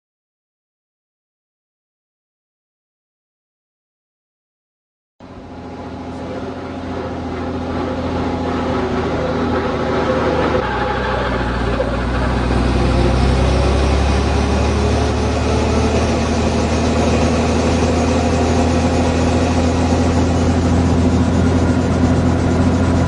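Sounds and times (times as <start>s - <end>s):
helicopter engine and rotor drone: 5.2s - 23.0s.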